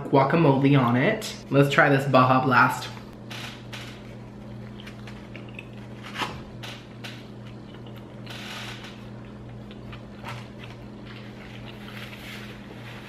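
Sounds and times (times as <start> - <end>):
steady low hum: 0.0 - 13.0
person chewing: 4.1 - 6.2, 6.9 - 8.3, 8.9 - 13.0.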